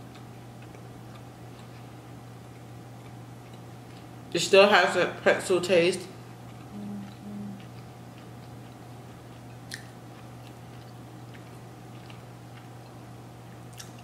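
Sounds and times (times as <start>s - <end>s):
low electrical hum: 0.0s - 14.0s
mouth-closed chewing: 6.5s - 13.0s, 13.7s - 14.0s
person humming mm: 6.7s - 7.7s.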